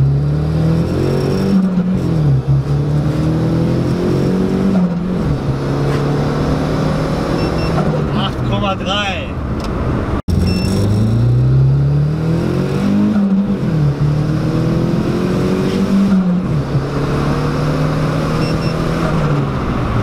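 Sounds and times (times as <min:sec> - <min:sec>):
car engine accelerating: 0:00.0 - 0:08.6, 0:09.4 - 0:20.0.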